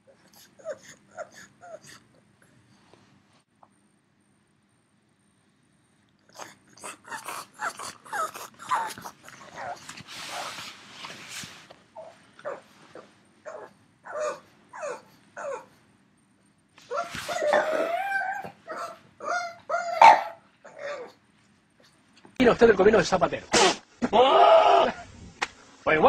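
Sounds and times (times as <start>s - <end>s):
dog vocalising: 0.0s - 2.2s, 6.2s - 10.7s, 12.0s - 15.8s, 16.9s - 21.2s
dog breathy hissing: 6.4s - 11.7s.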